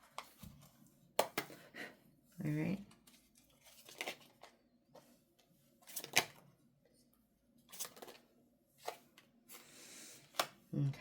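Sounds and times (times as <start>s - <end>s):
cards being shuffled: 5.9s - 6.4s, 7.7s - 8.2s.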